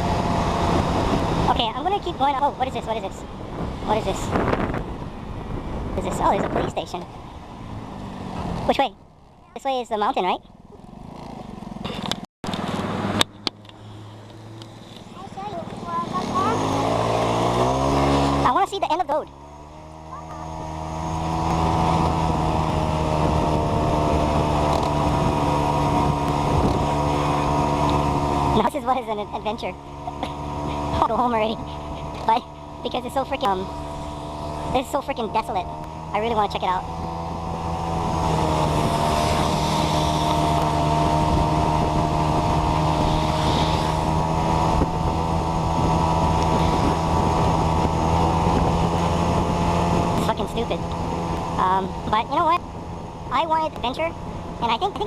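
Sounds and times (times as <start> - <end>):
motor scooter engine running: 0.0 - 55.0
wind on microphone: 3.0 - 8.7, 20.0 - 28.6, 35.6 - 53.3.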